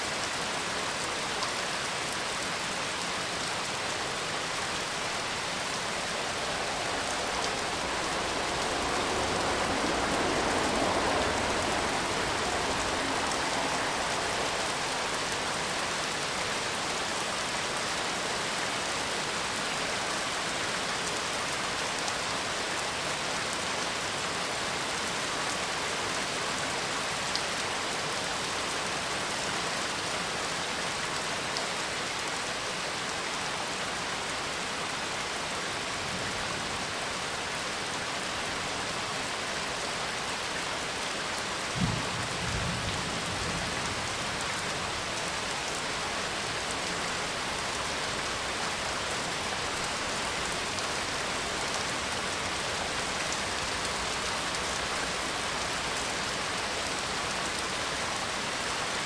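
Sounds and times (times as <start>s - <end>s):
steady rain: 0.0s - 59.0s
thunder rumble: 5.6s - 15.8s, 41.8s - 45.0s.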